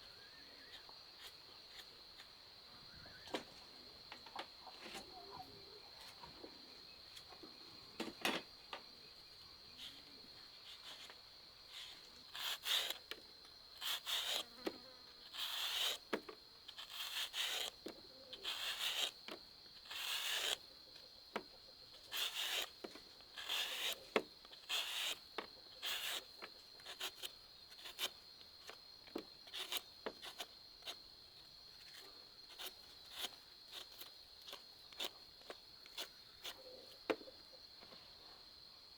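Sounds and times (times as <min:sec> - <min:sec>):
insect drone: 0:00.0 - 0:38.9
rasping scraping strokes: 0:15.3 - 0:16.0, 0:19.8 - 0:20.6, 0:23.4 - 0:25.2.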